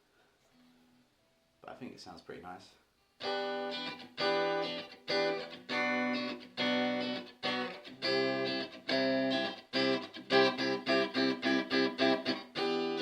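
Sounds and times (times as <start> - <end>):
electric guitar chords strummed: 3.2 - 13.0.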